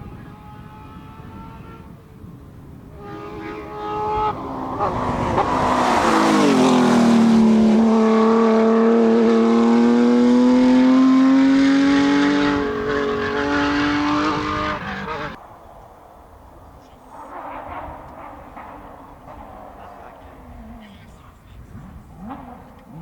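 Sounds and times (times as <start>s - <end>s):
rally car engine passing by: 3.0s - 15.4s, 21.7s - 23.0s.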